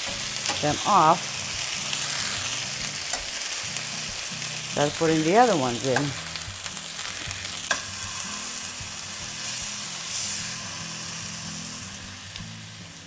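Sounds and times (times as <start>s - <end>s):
chicken sizzling in a frying pan: 0.0s - 13.0s
soft background music: 0.0s - 13.0s.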